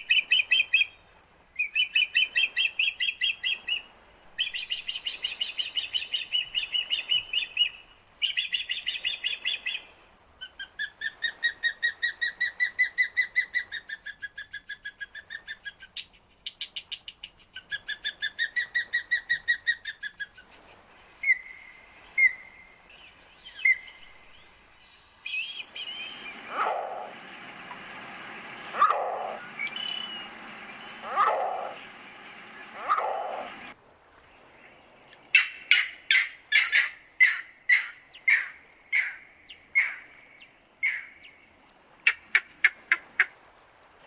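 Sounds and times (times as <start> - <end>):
steady hiss: 0.0 - 15.0, 15.7 - 44.0
bird chirping: 4.4 - 9.9, 20.2 - 33.8.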